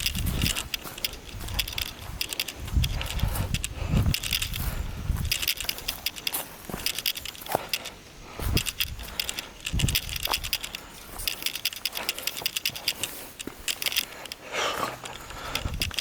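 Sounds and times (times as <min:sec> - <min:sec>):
leaves and twigs crunching underfoot: 0:00.0 - 0:16.0.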